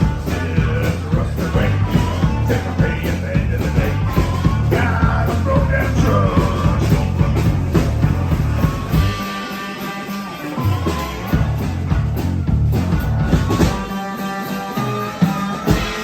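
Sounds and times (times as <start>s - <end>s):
person singing and shouting: 0.0s - 9.3s
bass line: 0.0s - 9.5s, 10.6s - 14.1s
driving drum beat: 0.0s - 16.0s.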